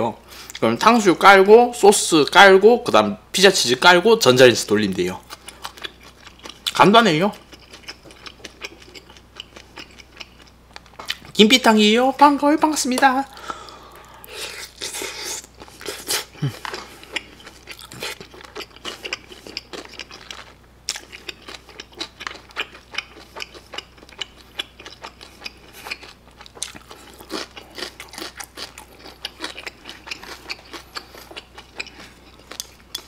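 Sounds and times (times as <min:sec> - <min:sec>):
person chewing food: 0:05.2 - 0:11.4, 0:13.3 - 0:33.0.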